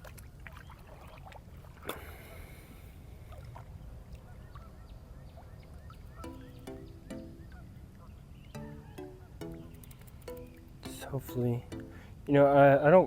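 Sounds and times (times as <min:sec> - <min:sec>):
wind and water rumble: 0:00.0 - 0:06.2.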